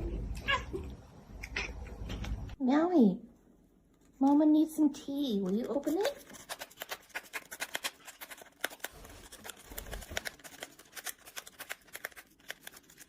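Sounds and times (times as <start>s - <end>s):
cat scratching packaging: 5.4s - 13.0s.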